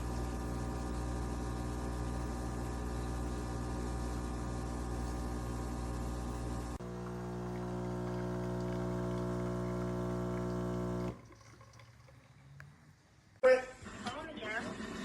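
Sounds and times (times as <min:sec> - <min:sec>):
coffee machine humming and hissing: 0:00.0 - 0:11.3.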